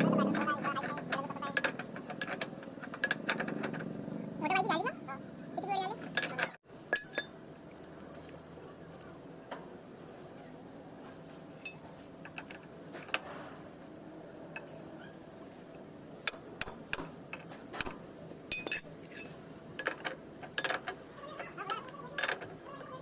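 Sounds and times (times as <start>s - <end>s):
metallic clinks of tools: 18.5s - 20.8s.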